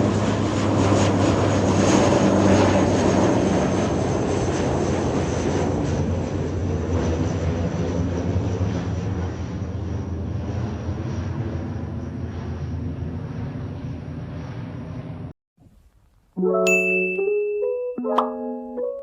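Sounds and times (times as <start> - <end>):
jet engines roaring with whine: 0.0 - 15.3.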